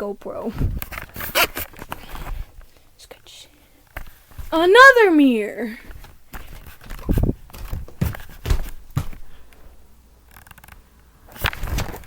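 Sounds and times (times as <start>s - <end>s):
footsteps: 4.0s - 4.7s, 5.8s - 9.7s.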